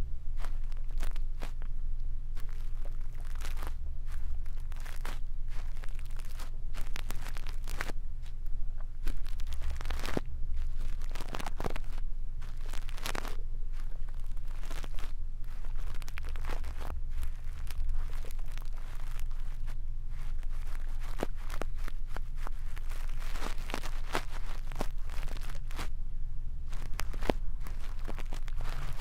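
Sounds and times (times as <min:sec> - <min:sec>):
steady low hum: 0:00.0 - 0:29.0
brush scratching on microphone: 0:02.4 - 0:08.4, 0:09.0 - 0:25.9, 0:26.7 - 0:29.0.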